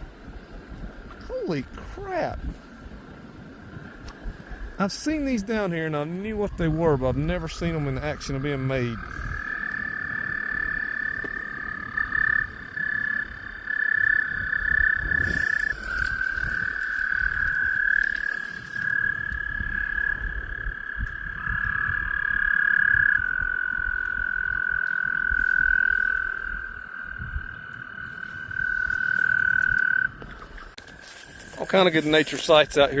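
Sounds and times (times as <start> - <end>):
toads trilling: 4.7 - 31.2
rustle: 14.4 - 19.5, 27.6 - 33.0.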